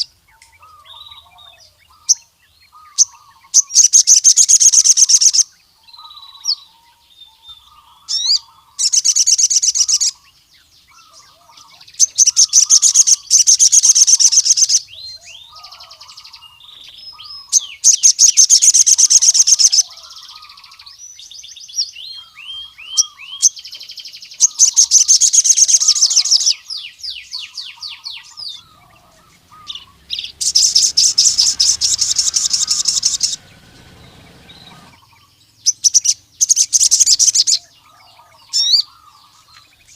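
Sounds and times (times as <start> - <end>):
soft bird chirps: 0.0 - 39.9
bird high fast trills: 27.4 - 37.6.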